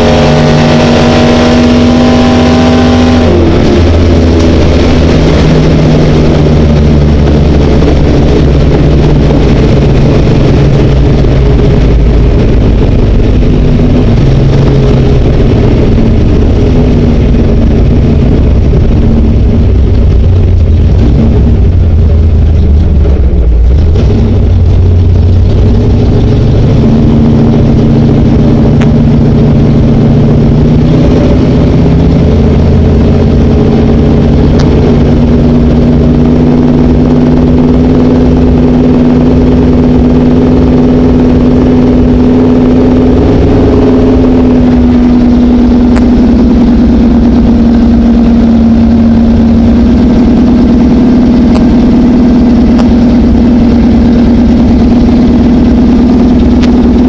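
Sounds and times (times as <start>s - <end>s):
car engine running at low speed: 0.0s - 57.0s.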